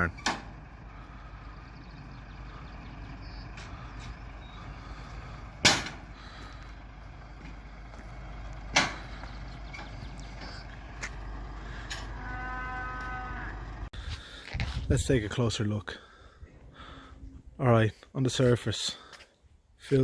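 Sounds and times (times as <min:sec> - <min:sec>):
steady low rumble: 0:00.0 - 0:19.9
cow mooing: 0:11.7 - 0:13.9.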